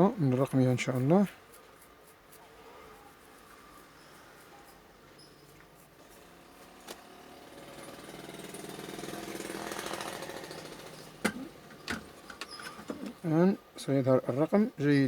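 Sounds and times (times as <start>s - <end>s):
rapid rattling buzz: 5.9s - 13.1s.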